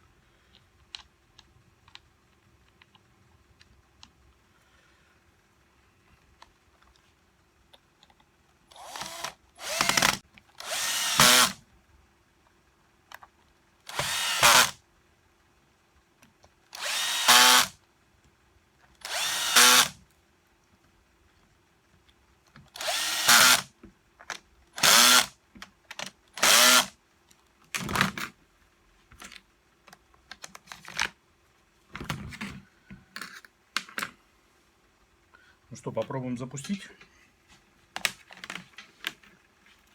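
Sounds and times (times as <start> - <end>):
power drill bursts: 8.7 - 11.6, 13.9 - 14.8, 16.8 - 17.8, 19.0 - 20.0, 22.8 - 23.7, 24.8 - 25.3, 26.4 - 26.9.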